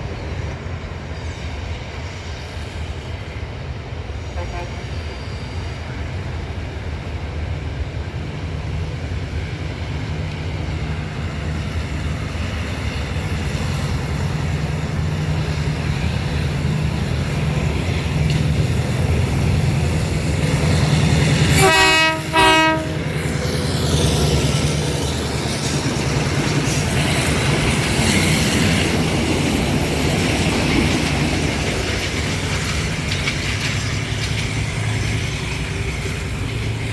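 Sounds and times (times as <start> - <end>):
train engine approaching: 0.0 - 36.9
train horn blasts: 4.3 - 5.0, 21.4 - 23.1.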